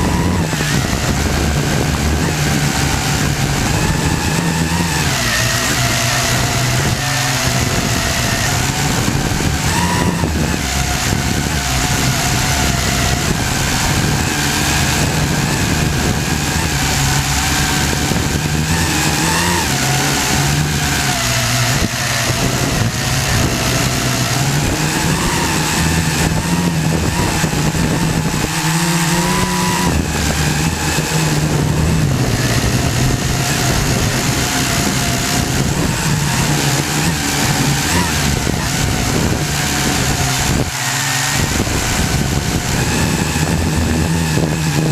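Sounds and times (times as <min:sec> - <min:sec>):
quadcopter propellers whirring: 0:00.0 - 0:44.9.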